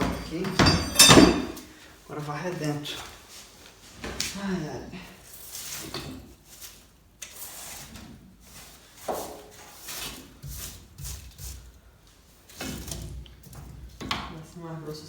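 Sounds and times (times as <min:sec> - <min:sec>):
brush sweeping ash in fireplace: 0:05.2 - 0:11.8.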